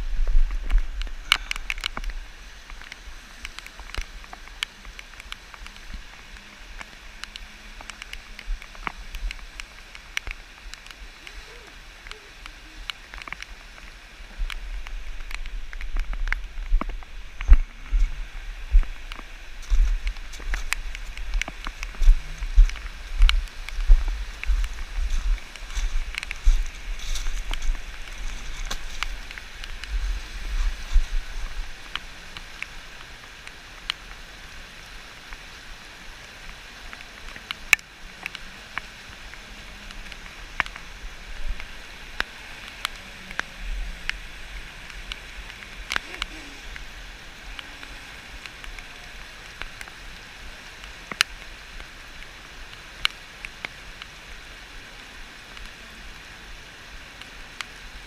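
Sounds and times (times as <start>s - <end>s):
river water rushing: 0.0s - 58.0s
wind buffeting microphone: 13.6s - 31.9s.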